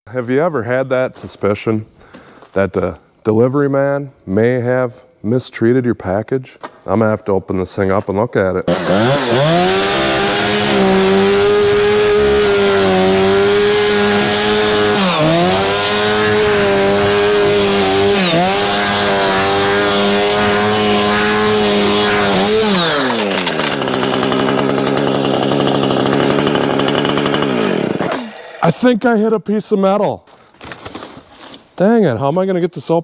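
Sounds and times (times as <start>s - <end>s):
chainsaw cutting cardboard: 8.7s - 28.7s.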